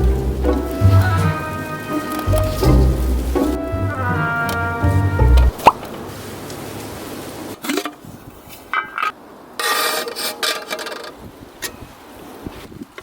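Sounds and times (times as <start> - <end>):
loud scrape: 9.6 - 10.9.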